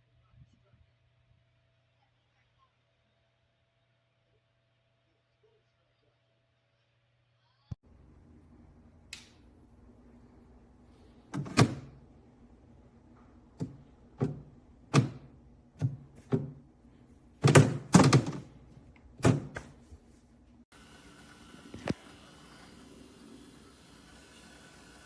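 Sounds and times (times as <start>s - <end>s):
knocks and clunks: 11.3s - 12.0s, 13.1s - 16.7s, 17.4s - 19.8s.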